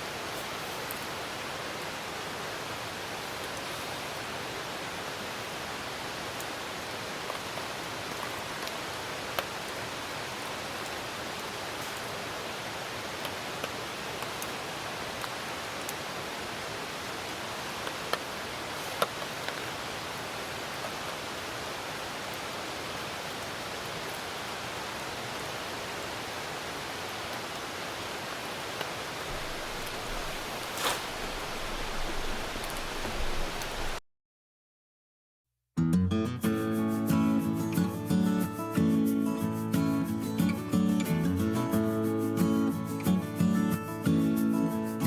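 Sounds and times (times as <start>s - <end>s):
rain hiss: 0.0s - 34.0s, 36.5s - 45.0s
campfire crackling and popping: 28.8s - 34.0s.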